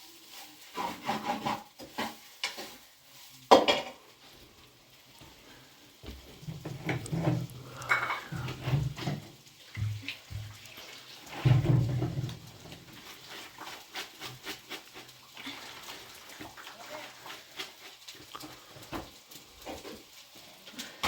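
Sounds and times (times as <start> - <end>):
dishes and utensils clicking: 6.8 - 8.6.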